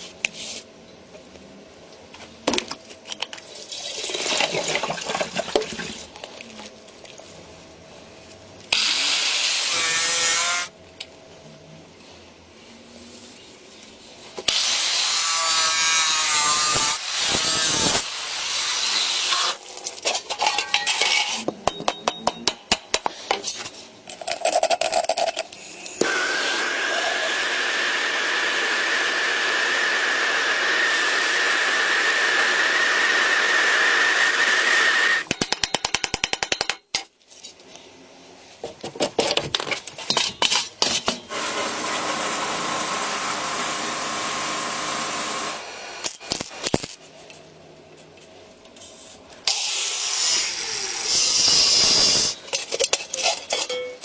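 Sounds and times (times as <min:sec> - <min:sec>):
power tool whining: 0:26.0 - 0:35.3.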